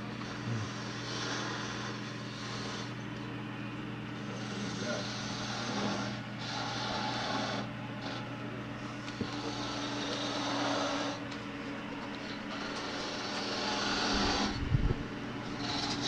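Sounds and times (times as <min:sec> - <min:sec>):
wood lathe motor hum: 0:00.0 - 0:03.4, 0:04.0 - 0:16.0
turning tool cutting wood: 0:04.2 - 0:08.3, 0:09.0 - 0:11.4, 0:12.2 - 0:14.6, 0:15.4 - 0:16.0.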